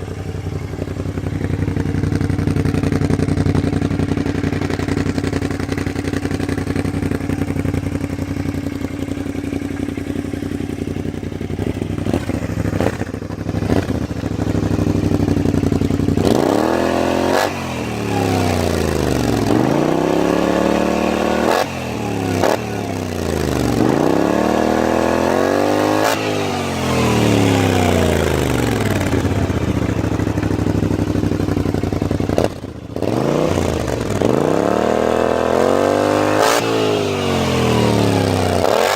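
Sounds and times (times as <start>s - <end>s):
scooter engine idling and revving: 0.0s - 38.9s.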